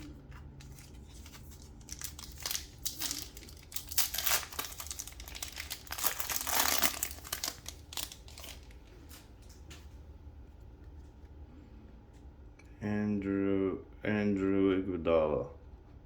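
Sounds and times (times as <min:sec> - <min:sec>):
card pack wrapper crinkling: 0:00.0 - 0:09.2.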